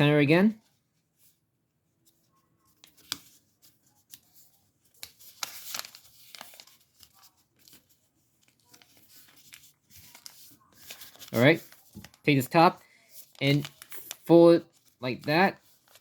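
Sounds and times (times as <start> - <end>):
paper rustling and folding: 0.5 - 16.0.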